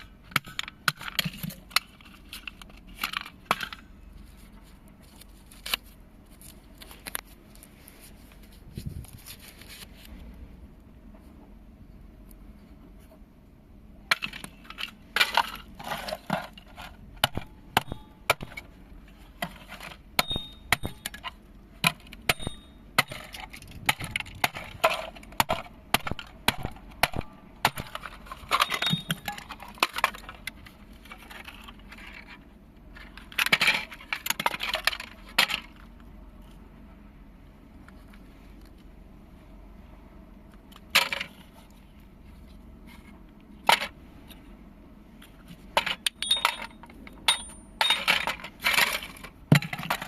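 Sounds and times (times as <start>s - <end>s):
plastic and metal parts cracking: 0.0s - 3.9s, 5.1s - 7.3s, 14.1s - 18.7s, 19.4s - 36.0s, 45.2s - 50.0s
scraping and rattling: 14.1s - 18.6s.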